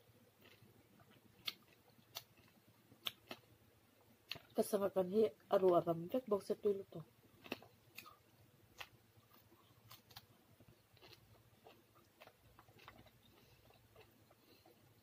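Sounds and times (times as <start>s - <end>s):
person chewing wetly: 0.3s - 3.5s, 4.2s - 4.6s, 7.2s - 15.0s.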